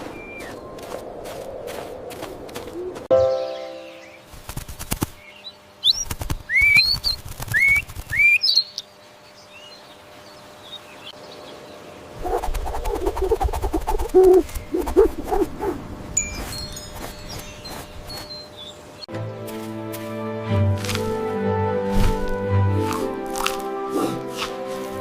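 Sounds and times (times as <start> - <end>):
bird chirping whistled notes: 0.0 - 0.8, 5.3 - 8.8, 16.2 - 18.8
short pulsing bird calls: 5.3 - 8.9.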